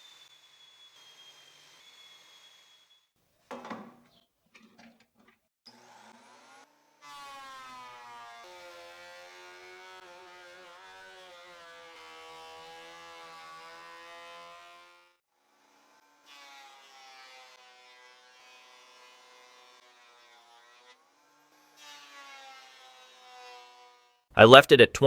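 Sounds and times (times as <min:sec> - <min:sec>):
woodworking machine motor whining: 0:00.0 - 0:03.0.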